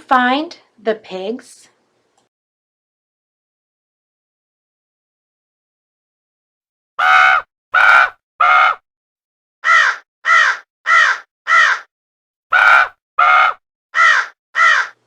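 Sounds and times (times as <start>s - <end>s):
crow cawing: 7.0s - 8.8s, 9.6s - 11.9s, 12.5s - 15.0s.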